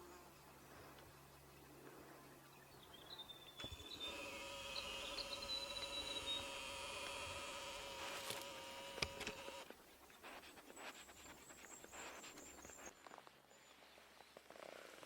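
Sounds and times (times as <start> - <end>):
insect buzzing: 3.7 - 9.7.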